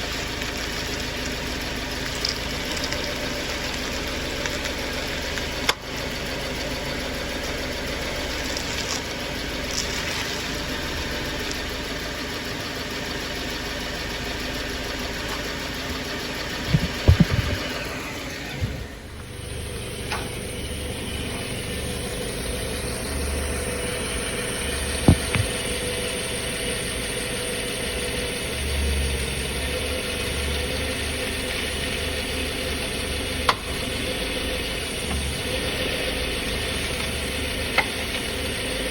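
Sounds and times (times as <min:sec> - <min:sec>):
car engine idling: 0:00.0 - 0:38.9
power steering clacks: 0:16.5 - 0:19.4, 0:24.0 - 0:25.9.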